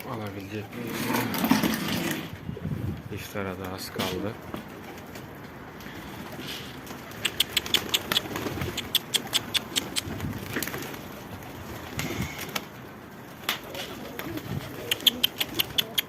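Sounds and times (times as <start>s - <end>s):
pigeons cooing: 5.8s - 12.9s, 13.5s - 16.0s
quick sharp clicks: 7.1s - 10.2s, 14.8s - 16.0s.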